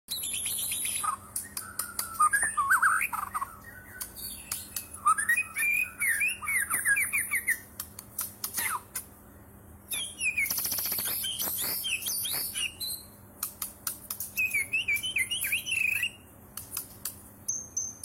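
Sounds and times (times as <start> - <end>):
bird singing varied song: 0.1 - 18.0
sharp clicks: 0.4 - 5.0, 7.7 - 9.1, 9.9 - 12.7, 13.4 - 15.6, 16.5 - 17.3.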